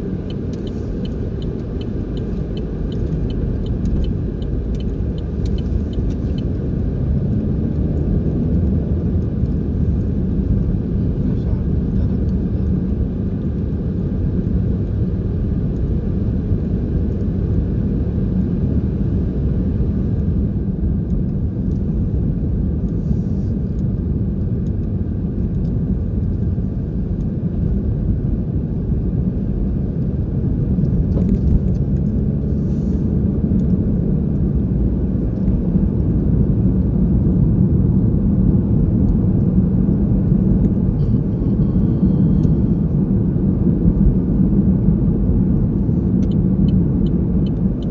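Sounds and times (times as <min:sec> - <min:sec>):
vehicle and road rumble: 0:00.0 - 0:47.9.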